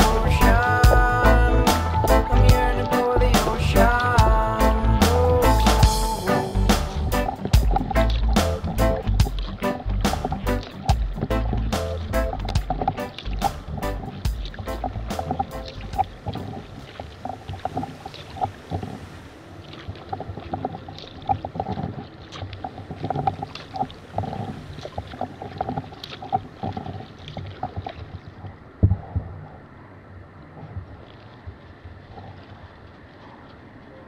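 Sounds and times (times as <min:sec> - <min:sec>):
water dripping and trickling: 0:00.0 - 0:29.6
paddle splashing in water: 0:00.0 - 0:29.8.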